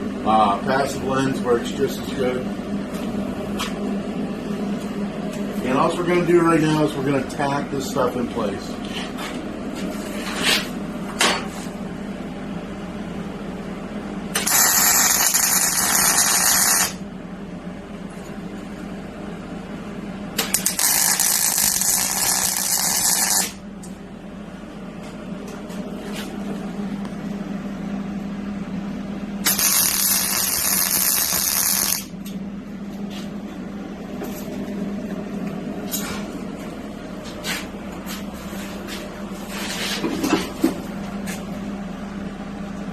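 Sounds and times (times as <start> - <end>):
steady low hum: 0.0 - 42.9
welding arc crackling and hissing: 14.3 - 17.0, 20.4 - 23.6, 29.4 - 32.1.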